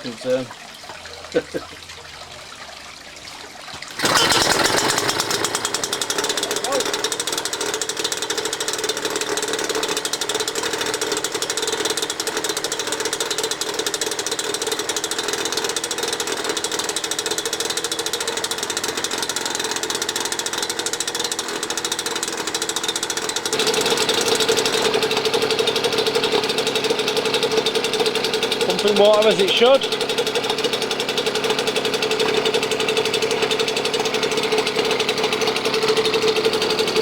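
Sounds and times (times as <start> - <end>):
two-stroke outboard motor running: 0.0 - 37.0.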